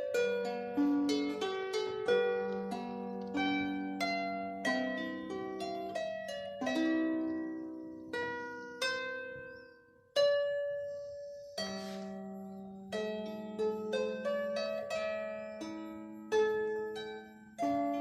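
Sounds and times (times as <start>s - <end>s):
harp plucked melody: 0.0s - 18.0s.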